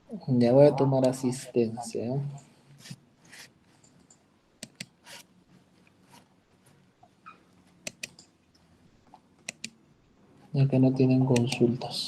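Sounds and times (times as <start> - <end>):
sharp clicks: 4.0 - 5.0, 7.8 - 8.3, 9.4 - 9.8, 11.3 - 11.7
soft rustles: 5.0 - 9.4.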